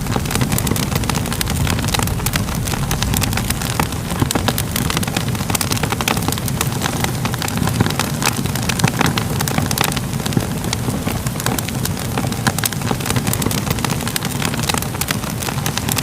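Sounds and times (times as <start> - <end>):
fire flames rumbling: 0.0 - 16.0
wood fire pops and crackles: 0.0 - 16.0.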